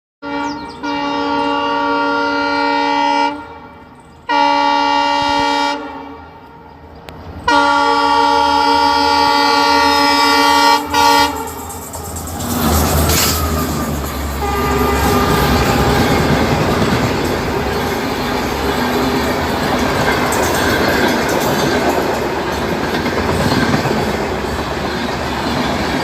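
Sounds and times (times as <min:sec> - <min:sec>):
locomotive horn blasts: 0:00.2 - 0:06.9, 0:07.5 - 0:12.1, 0:12.8 - 0:19.4
train rumble: 0:00.5 - 0:26.0.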